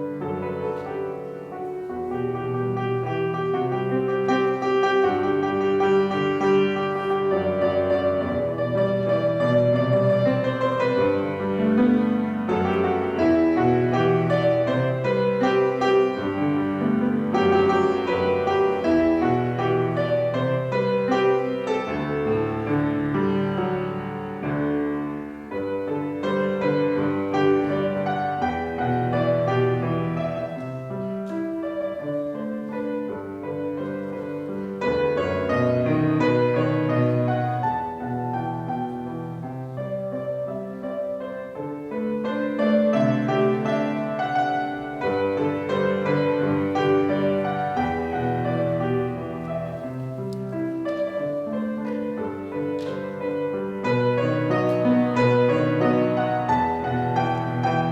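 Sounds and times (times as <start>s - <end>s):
piano melody over chords: 0.0s - 57.9s.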